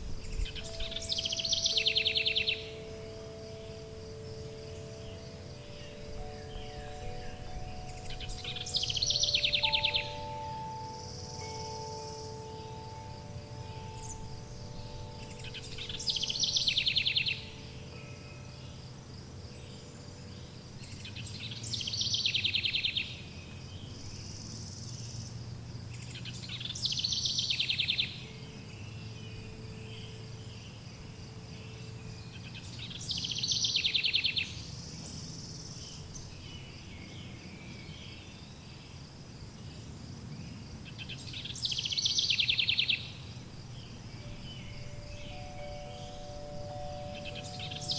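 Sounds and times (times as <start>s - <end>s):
songbird phrase with trill: 0.0s - 18.9s, 19.6s - 23.2s, 26.0s - 30.8s, 31.6s - 38.6s, 41.0s - 47.9s
wind chimes ringing: 0.0s - 21.3s, 43.4s - 47.9s
high insect-like buzz: 0.0s - 22.0s, 42.7s - 47.9s.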